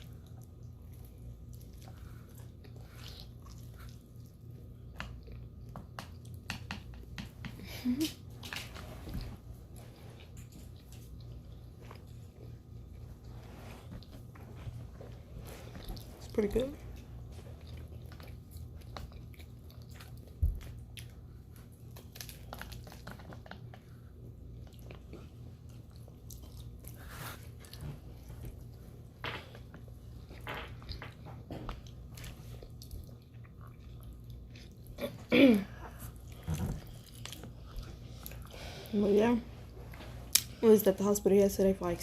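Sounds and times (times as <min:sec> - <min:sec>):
chewing and biting food: 0:00.0 - 0:07.4, 0:14.8 - 0:35.2, 0:36.0 - 0:38.6
food crunching: 0:17.0 - 0:35.2.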